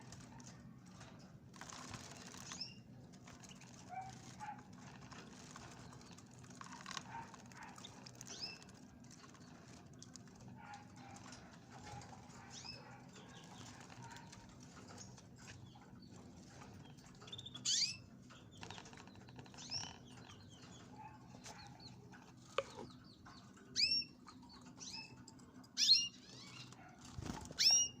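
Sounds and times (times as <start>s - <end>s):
wings fluttering: 1.5s - 12.4s, 26.6s - 27.9s.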